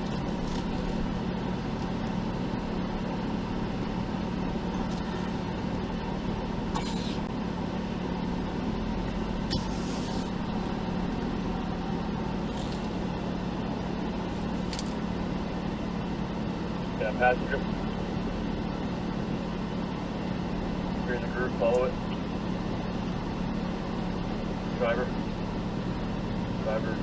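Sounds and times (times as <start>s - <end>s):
off-road vehicle engine idling: 0.0s - 27.0s
brief hisses: 6.8s - 7.2s.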